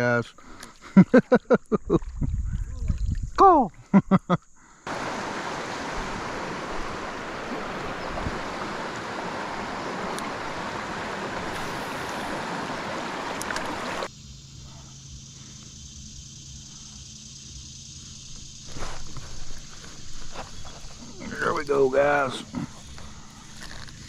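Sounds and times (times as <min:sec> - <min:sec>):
river water rushing: 0:04.9 - 0:14.1.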